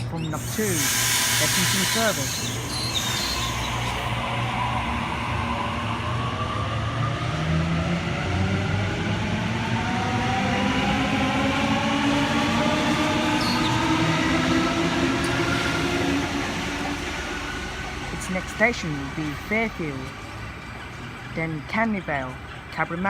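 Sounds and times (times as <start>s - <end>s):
train wheels rumbling: 0.3s - 4.6s
electric train motor whine: 0.4s - 6.7s.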